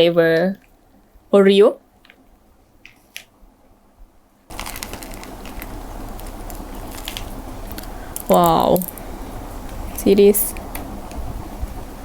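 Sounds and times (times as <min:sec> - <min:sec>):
steady hiss: 0:04.0 - 0:12.0
food packaging crinkling: 0:04.5 - 0:10.9.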